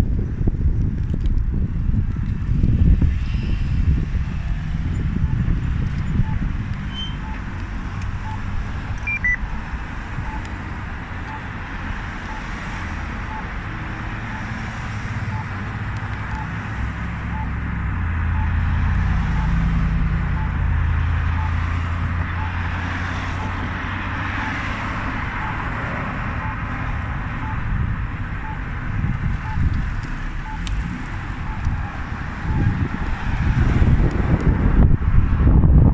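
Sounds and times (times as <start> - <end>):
road and wind rumble: 0.0 - 35.9
faint even ticking: 23.4 - 31.8.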